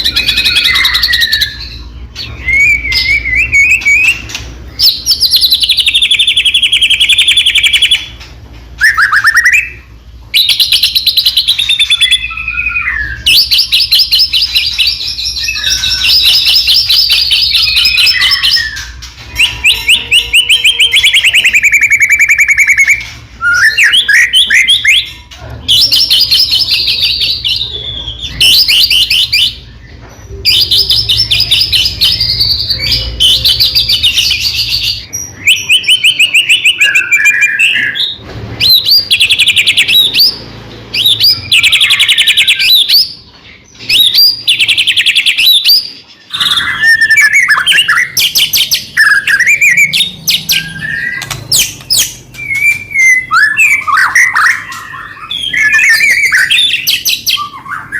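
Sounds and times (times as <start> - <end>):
bird singing rapid trills: 38.6 - 57.9.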